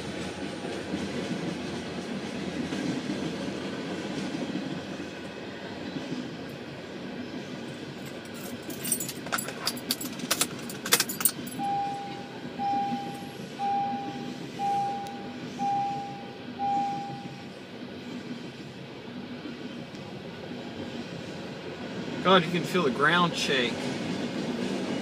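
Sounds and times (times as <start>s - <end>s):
train rumbling: 0.0s - 25.0s
short beeps: 11.6s - 17.5s.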